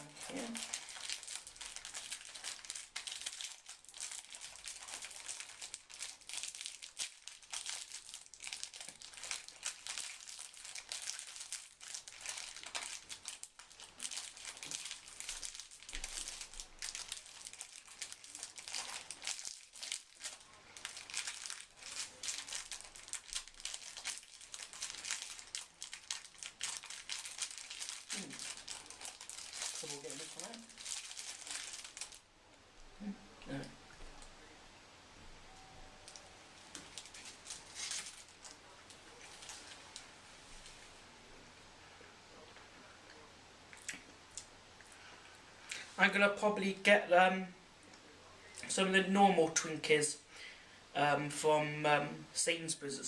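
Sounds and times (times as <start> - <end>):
plastic wrapper crinkling: 0.0 - 32.3, 36.0 - 40.9.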